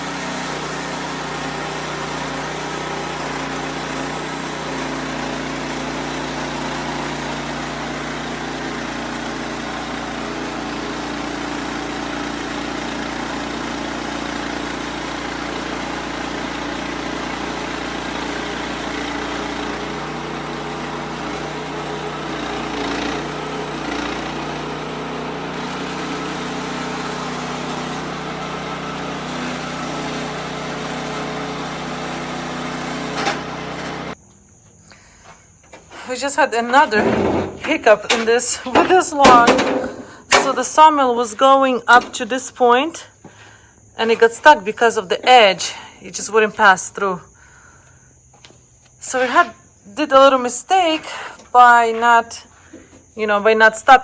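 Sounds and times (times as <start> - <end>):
band sawmill cutting log: 0.0 - 34.2, 35.7 - 42.4, 49.0 - 49.5.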